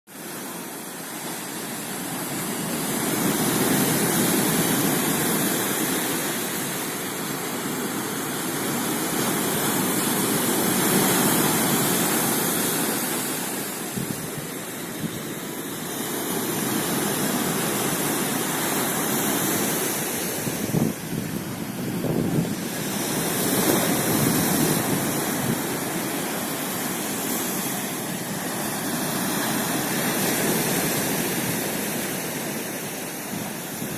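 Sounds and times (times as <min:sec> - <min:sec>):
surf breaking on shore: 0:00.1 - 0:33.9
wind buffeting microphone: 0:13.7 - 0:15.6, 0:19.5 - 0:26.5.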